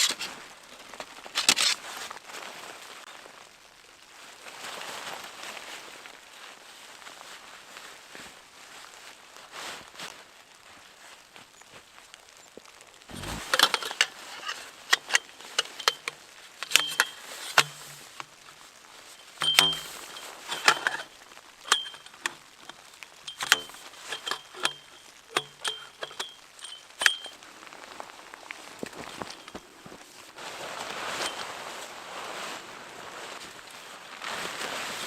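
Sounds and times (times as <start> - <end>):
heavy thumps: 13.1 - 13.5
metal gear clinking: 19.4 - 22.3, 23.3 - 27.4.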